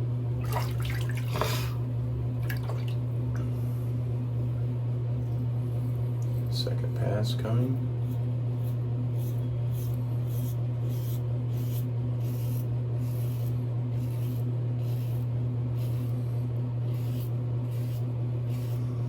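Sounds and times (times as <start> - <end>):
steady low hum: 0.0 - 19.0
razor scraping through lather: 8.0 - 19.0.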